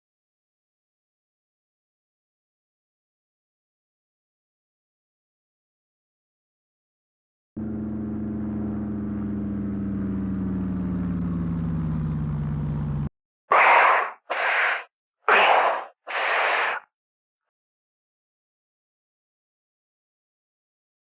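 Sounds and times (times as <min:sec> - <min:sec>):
propeller aircraft engine drone: 0:07.6 - 0:13.1.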